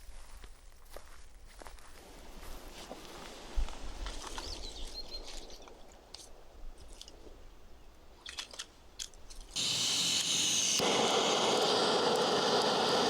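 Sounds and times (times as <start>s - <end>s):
burner flame rushing: 9.6s - 13.0s
gas stove hissing: 9.6s - 13.0s.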